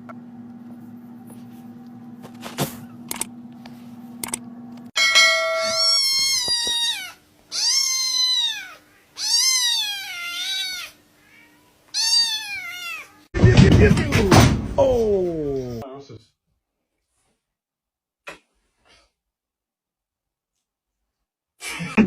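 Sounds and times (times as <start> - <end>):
cat meowing: 5.8 - 13.3.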